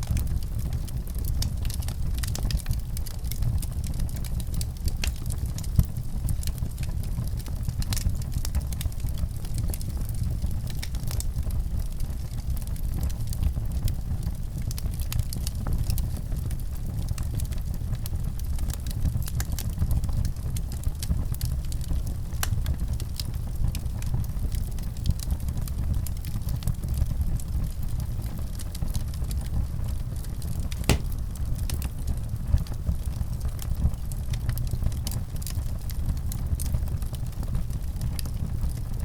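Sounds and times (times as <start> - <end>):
fire crackling and popping: 30.7 - 31.8.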